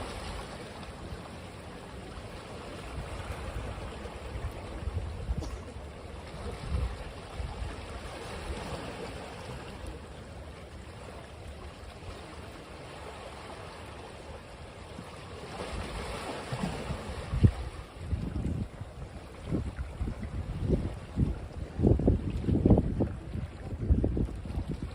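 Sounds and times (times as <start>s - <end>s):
ocean surf washing on beach: 0.0s - 24.9s
wind rumbling on microphone: 2.8s - 5.8s, 6.4s - 8.7s, 16.5s - 24.9s.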